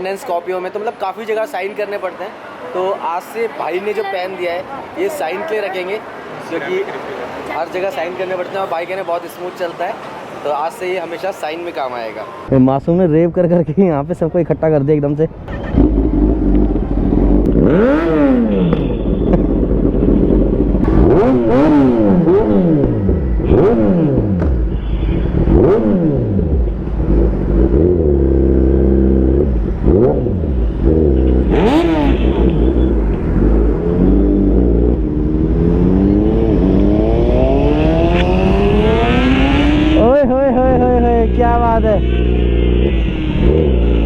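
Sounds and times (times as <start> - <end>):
motorcycle engine revving: 15.5 - 44.0.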